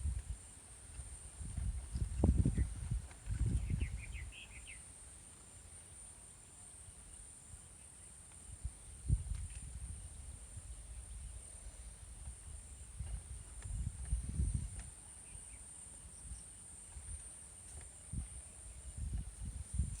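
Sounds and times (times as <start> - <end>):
wind rumbling on microphone: 0.0 - 4.8, 8.5 - 20.0
insects droning: 0.0 - 20.0
faint bird chirps: 1.9 - 4.9.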